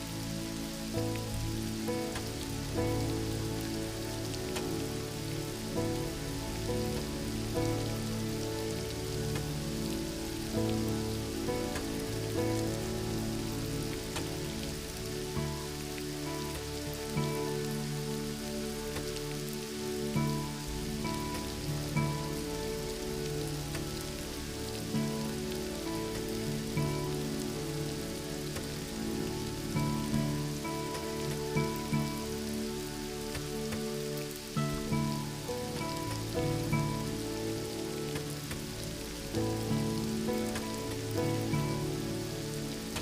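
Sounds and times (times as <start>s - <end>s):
rain hissing: 0.0s - 43.0s
soft slow background music: 0.0s - 43.0s.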